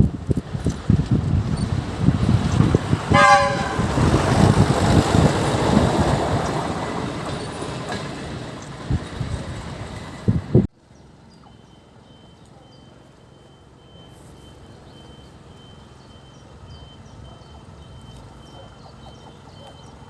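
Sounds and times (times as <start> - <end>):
bird chirps: 11.0 - 20.0
high electronic beep: 11.4 - 20.0.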